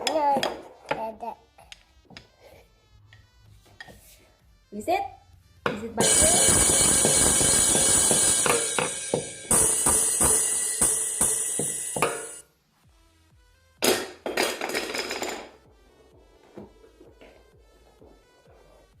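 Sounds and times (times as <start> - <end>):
musical toy playing jangly music: 6.0 - 12.4.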